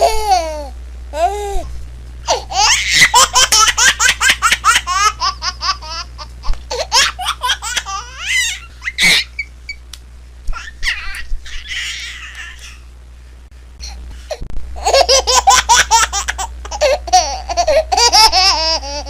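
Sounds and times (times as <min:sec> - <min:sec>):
low steady hum: 0:00.0 - 0:19.0
baby laughing: 0:02.3 - 0:09.5, 0:10.5 - 0:12.8, 0:14.8 - 0:19.0.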